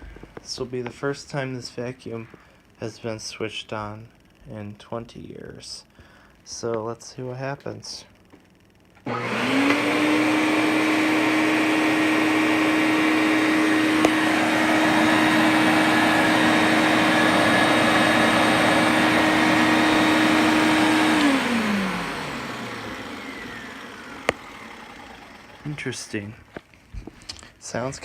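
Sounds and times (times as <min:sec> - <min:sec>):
vacuum cleaner motor whining: 0:00.0 - 0:02.7, 0:09.0 - 0:27.4.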